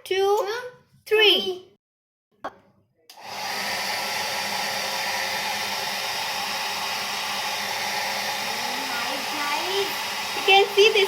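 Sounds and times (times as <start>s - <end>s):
hair dryer blowing: 3.1s - 11.0s.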